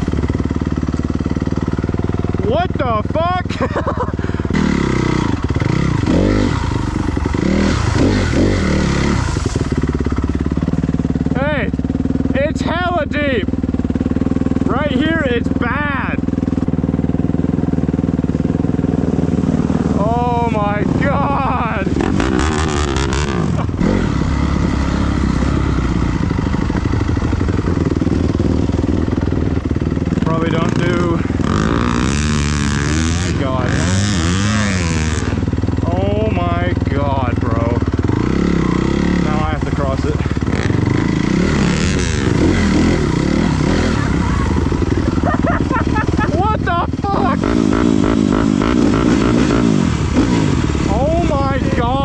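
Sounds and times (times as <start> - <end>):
dirt bike engine revving: 0.0 - 52.0
mud splashing: 6.5 - 11.0.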